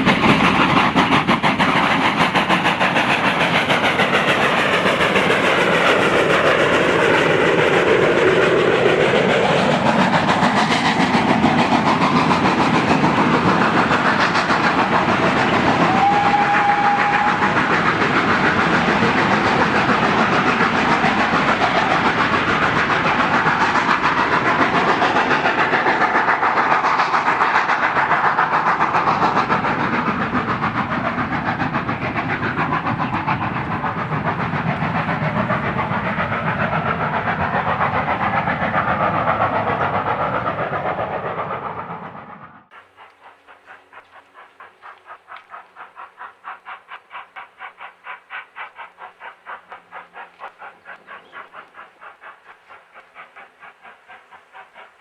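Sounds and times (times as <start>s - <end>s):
steam train rumbling: 0.0s - 55.0s
train whistle: 15.8s - 17.6s.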